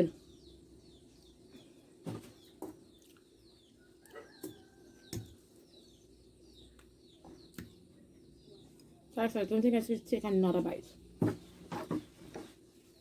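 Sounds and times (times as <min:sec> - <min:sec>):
small birds chirping: 0:00.0 - 0:13.0
chewing and eating smacks: 0:02.9 - 0:03.4.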